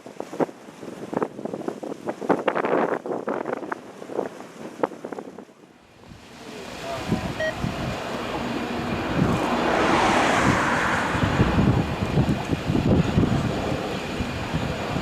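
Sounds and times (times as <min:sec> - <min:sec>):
wind buffeting microphone: 0:00.0 - 0:15.0
jet airliner passing overhead: 0:05.8 - 0:15.0.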